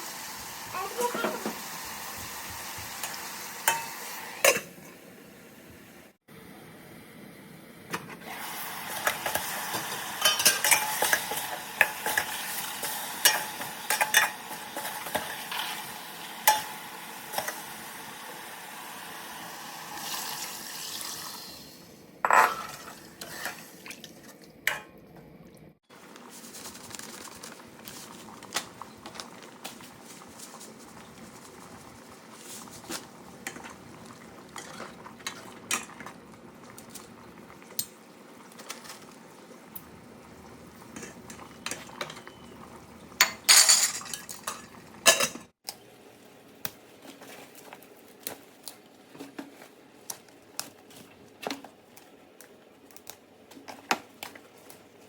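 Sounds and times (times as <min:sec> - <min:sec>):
pots and pans clattering: 0:00.8 - 0:01.7, 0:08.9 - 0:15.8, 0:22.2 - 0:23.6, 0:40.9 - 0:45.6.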